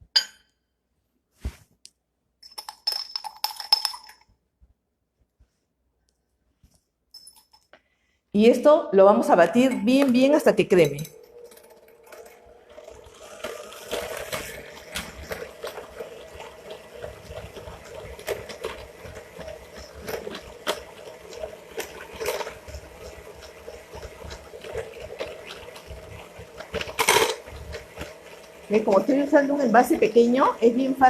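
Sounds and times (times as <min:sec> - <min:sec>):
beaters swishing through mixture: 0:09.2 - 0:31.0
hand mixer motor hum: 0:10.8 - 0:31.0.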